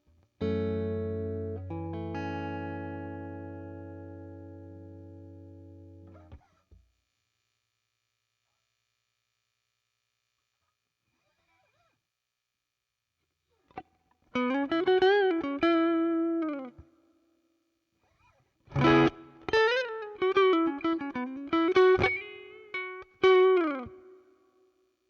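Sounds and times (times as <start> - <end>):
electric guitar lead phrases: 0.4 - 6.4, 13.7 - 16.9, 18.7 - 24.4.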